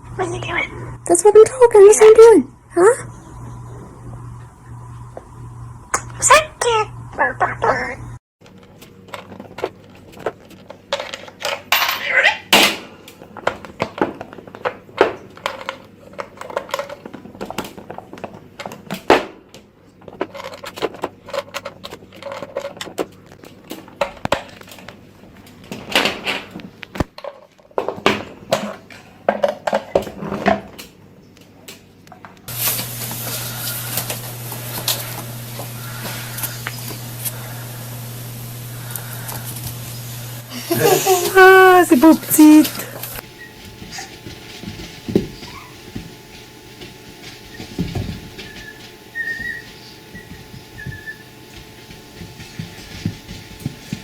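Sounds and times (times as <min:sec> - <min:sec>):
low hum: 0:02.5 - 0:08.2, 0:32.5 - 0:41.4
steady hiss: 0:32.5 - 0:54.0.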